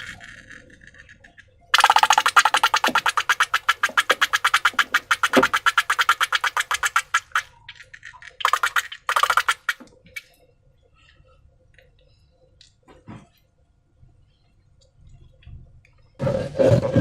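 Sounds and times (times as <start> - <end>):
slime clicking and popping: 1.8 - 7.4.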